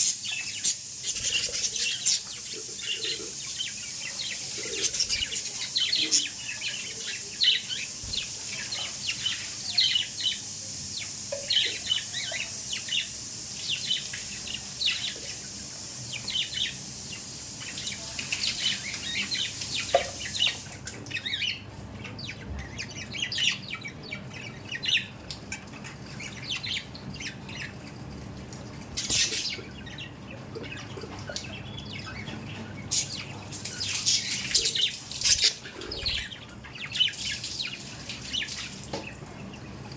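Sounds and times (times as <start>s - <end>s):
budgerigars chattering: 0.0s - 15.5s.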